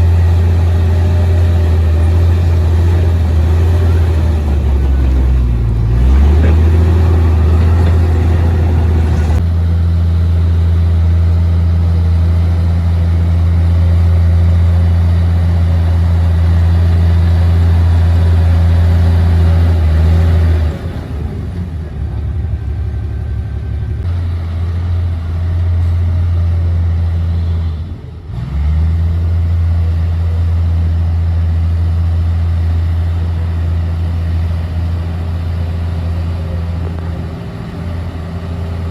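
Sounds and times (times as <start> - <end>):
bulldozer diesel engine droning: 0.0 - 38.9.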